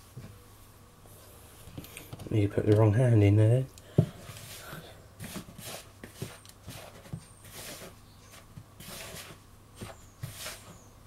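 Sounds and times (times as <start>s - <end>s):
chicken rustling in flour: 4.3s - 10.8s.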